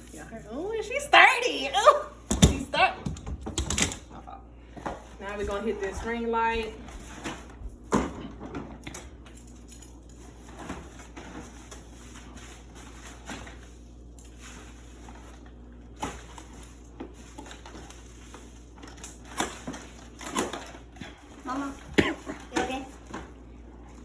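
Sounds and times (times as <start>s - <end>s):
rustling of box and wrapping: 9.5s - 24.0s.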